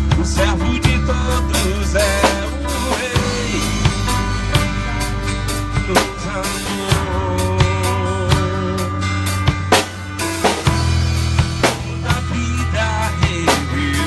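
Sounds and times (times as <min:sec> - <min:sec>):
drum kit steady beat: 0:00.0 - 0:14.0
sustained bass notes: 0:00.0 - 0:14.0
wavering melodic line: 0:01.1 - 0:08.3.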